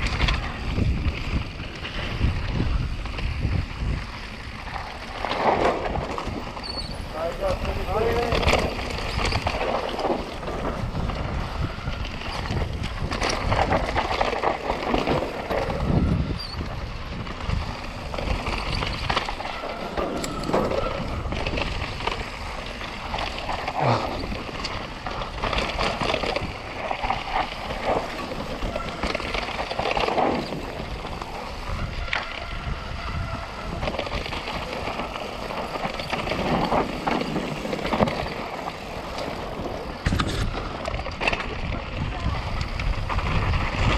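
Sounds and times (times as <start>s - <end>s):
bike rattles and knocks: 0.0s - 43.9s
bike tyres rolling over dirt: 0.0s - 43.9s
continuous rushing noise: 0.0s - 43.9s.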